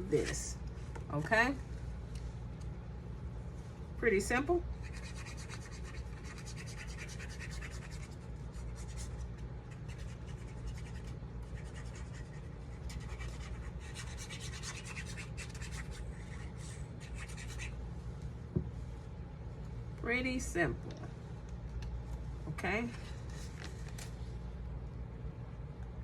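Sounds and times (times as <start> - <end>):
low steady hum: 0.0 - 26.0
paper rubbing and rustling: 23.0 - 24.3.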